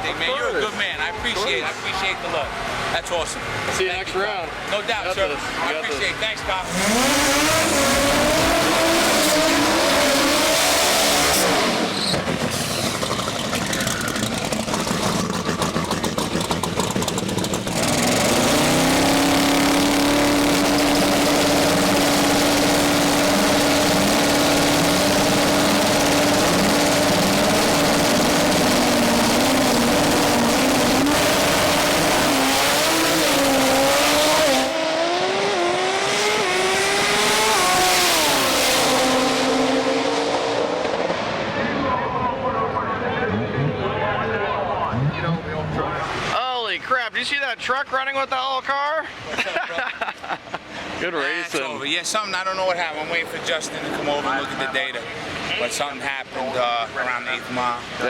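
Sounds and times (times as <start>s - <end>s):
racing engine at high revs: 1.2s - 44.1s.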